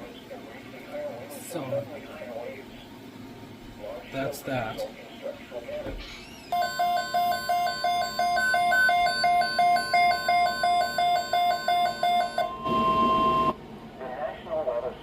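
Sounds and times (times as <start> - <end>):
rapid alert beeping: 6.5 - 13.5
steady high tone: 6.5 - 13.6.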